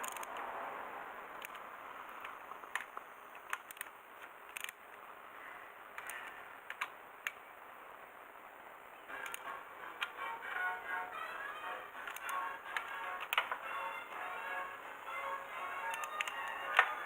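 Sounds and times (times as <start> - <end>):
faint hiss: 0.0 - 17.0
sharp clicks and light taps: 1.4 - 5.0, 6.0 - 7.4, 9.2 - 10.2, 12.0 - 13.6, 15.8 - 17.0.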